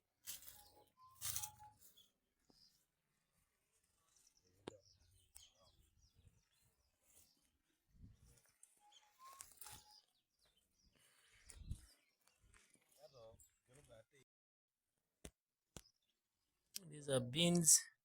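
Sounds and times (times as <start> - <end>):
faint bird chirps: 0.5 - 2.9, 3.9 - 13.5.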